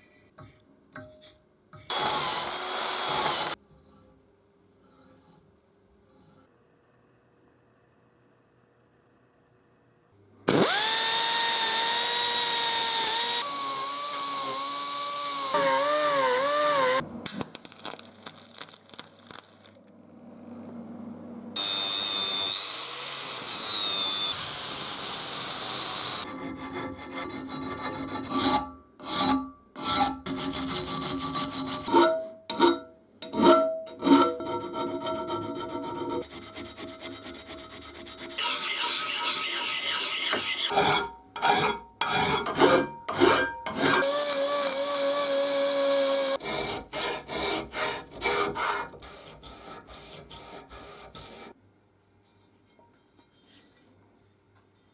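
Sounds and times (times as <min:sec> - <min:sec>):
loud abrasive grinding noise: 0:01.9 - 0:03.6
power tool whining: 0:01.9 - 0:03.6, 0:10.5 - 0:17.0, 0:21.6 - 0:26.2, 0:44.0 - 0:46.4
filing and rubbing on metal: 0:03.1 - 0:06.5, 0:25.7 - 0:44.3, 0:46.4 - 0:51.6.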